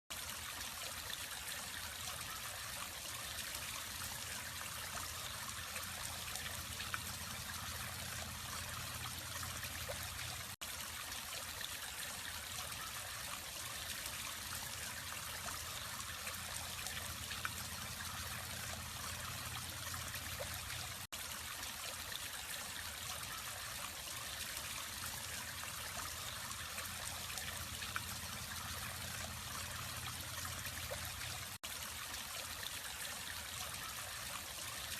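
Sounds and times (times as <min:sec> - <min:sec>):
water trickling and splashing: 0:00.1 - 0:34.9
low steady hum: 0:04.2 - 0:10.6.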